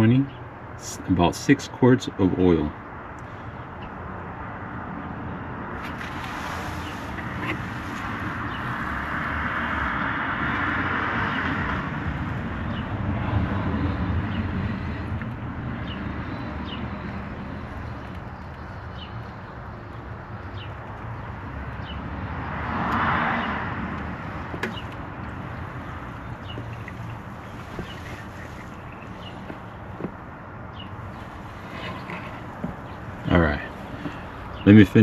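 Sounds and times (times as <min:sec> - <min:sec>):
small bird chirping: 0:24.6 - 0:29.9.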